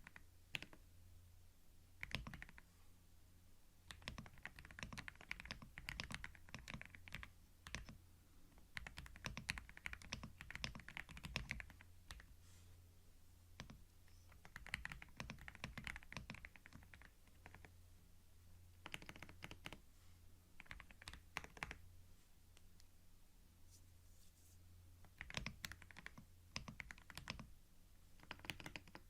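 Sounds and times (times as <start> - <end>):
computer keyboard typing: 0.0 - 0.8, 2.0 - 2.6, 3.9 - 8.0, 8.6 - 12.3, 13.6 - 17.7, 18.8 - 19.8, 20.6 - 21.8, 25.0 - 27.5, 28.2 - 29.0.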